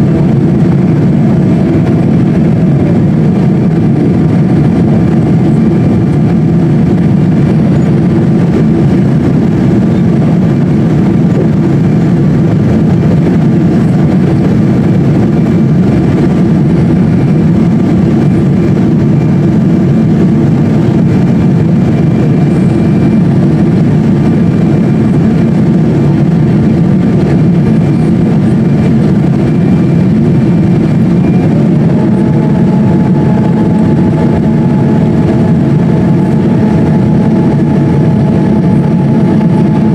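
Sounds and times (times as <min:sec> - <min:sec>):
faint steady whine: 0:00.0 - 0:39.9
jet cabin roar: 0:00.0 - 0:39.9
high tone: 0:31.1 - 0:34.9.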